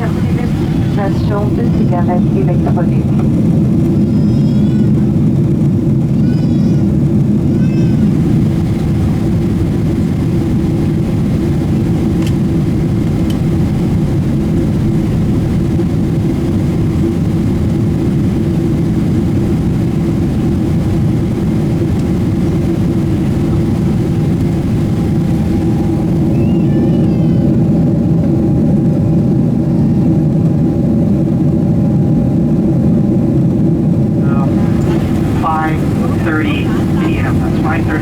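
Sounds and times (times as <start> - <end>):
faint steady hum: 0.0 - 4.0, 33.9 - 38.0
airliner cabin roar: 0.0 - 38.0.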